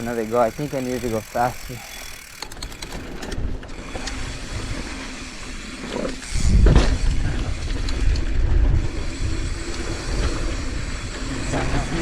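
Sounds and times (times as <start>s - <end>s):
bike tyres rolling on dirt: 0.0s - 12.0s
wind rumbling on microphone: 2.5s - 12.0s.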